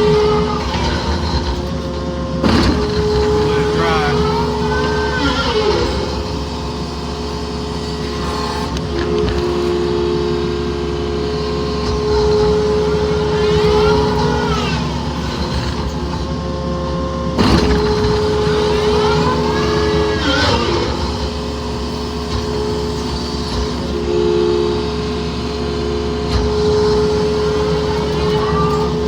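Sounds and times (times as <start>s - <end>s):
excavator diesel engine under load: 0.0s - 29.0s
hydraulic whine: 0.0s - 29.0s.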